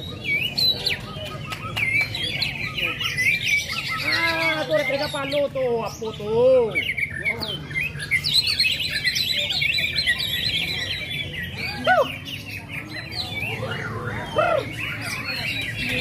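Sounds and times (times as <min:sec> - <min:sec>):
songbirds chirping and trilling: 0:00.0 - 0:16.0.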